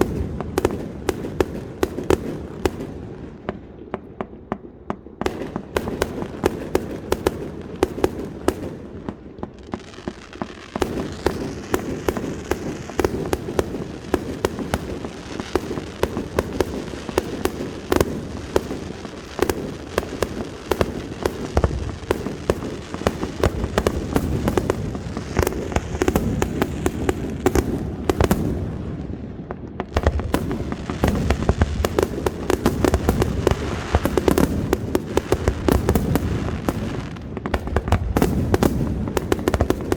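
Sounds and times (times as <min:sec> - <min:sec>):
fireworks cracking and banging: 0:00.0 - 0:39.9.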